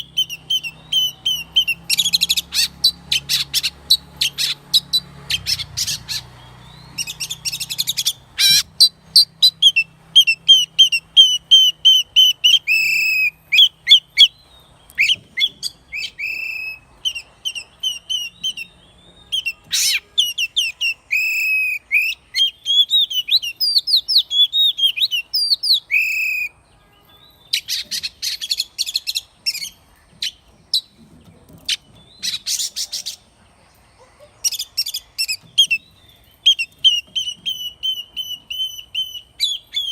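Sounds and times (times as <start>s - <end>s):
harsh scratchy bird chatters: 0.0s - 6.4s, 7.0s - 9.8s, 27.6s - 33.3s
bird singing whistled notes: 0.0s - 31.0s, 34.5s - 39.9s.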